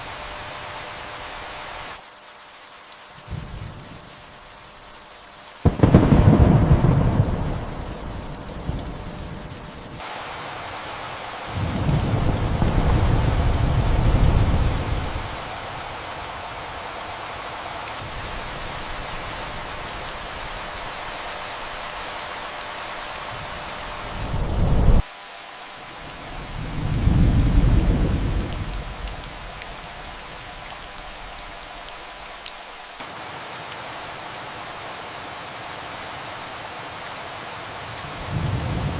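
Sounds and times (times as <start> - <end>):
steady rain falling: 0.0 - 38.9
low rolls of thunder: 5.6 - 9.9, 11.5 - 15.4, 24.0 - 25.0, 26.4 - 29.7, 38.2 - 38.9.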